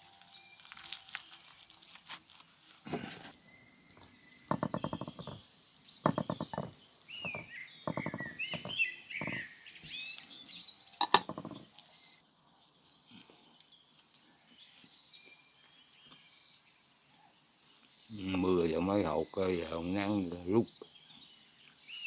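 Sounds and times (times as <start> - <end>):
bird chirping glides: 1.5 - 22.0
birds rapid pulsing calls: 4.0 - 11.8.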